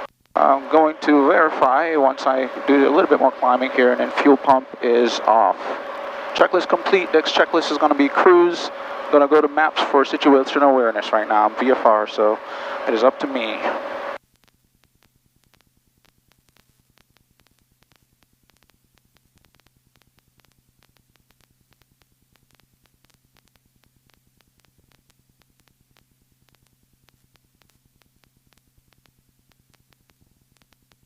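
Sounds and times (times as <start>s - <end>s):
rapid crackle of tiny clicks: 0.0s - 0.4s, 14.2s - 31.0s
faint electrical hum: 0.0s - 31.0s.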